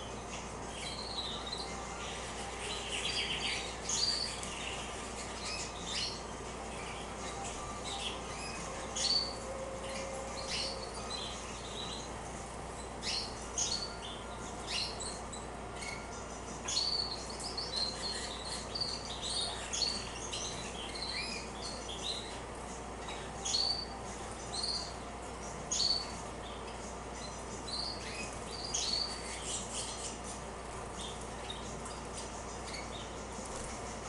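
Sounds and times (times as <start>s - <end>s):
canaries chirping: 0.0s - 34.0s
low background noise: 0.0s - 34.0s.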